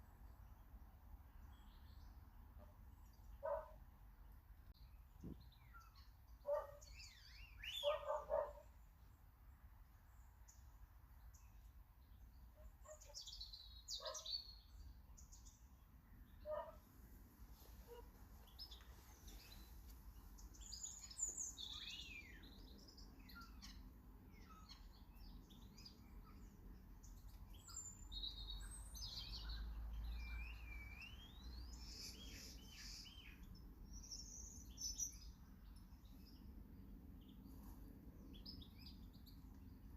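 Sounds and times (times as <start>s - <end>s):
birds chirping: 1.4s - 3.8s, 4.7s - 9.1s, 10.1s - 16.9s, 17.5s - 39.9s
lower-pitched bird calls: 5.7s - 8.7s
whistled bird phrase: 7.1s - 8.0s.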